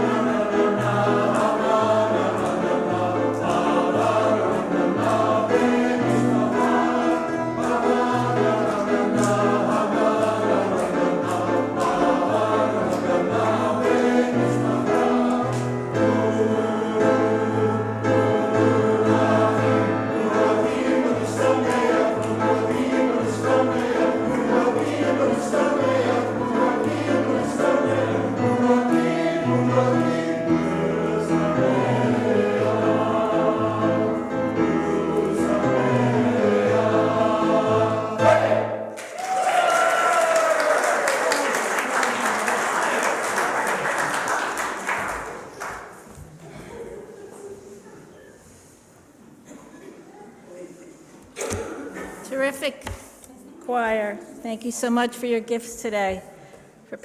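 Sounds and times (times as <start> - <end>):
choir singing: 0.0 - 39.0.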